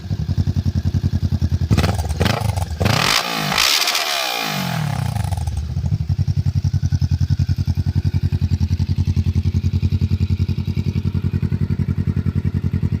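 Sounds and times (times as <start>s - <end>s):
motorcycle engine settling to idle: 0.0s - 2.8s, 4.8s - 13.0s.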